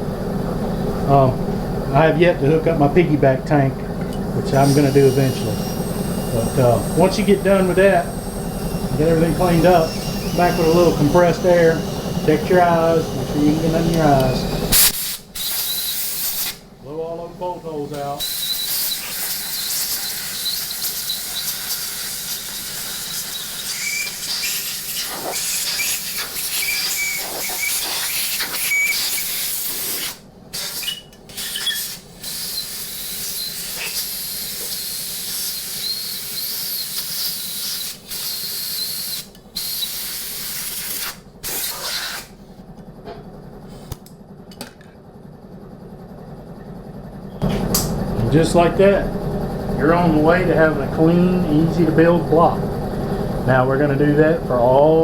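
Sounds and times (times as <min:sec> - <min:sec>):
compressed air blow gun hissing: 0:04.5 - 0:16.6, 0:18.0 - 0:42.4.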